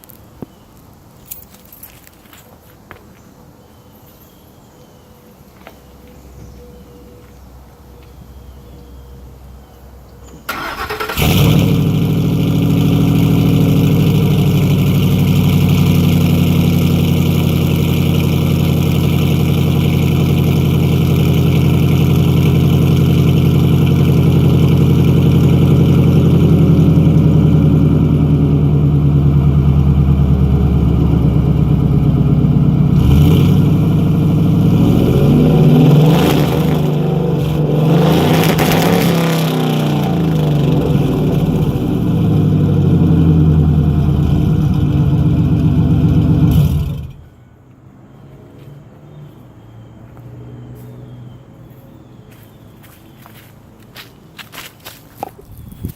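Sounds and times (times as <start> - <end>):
truck engine cranking and idling: 10.2 - 47.4.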